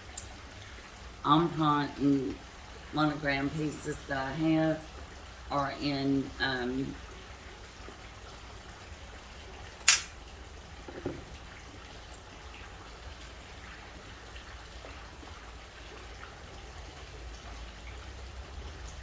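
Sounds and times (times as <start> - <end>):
sharp click: 9.8 - 10.2
soft dull knock: 10.9 - 11.3.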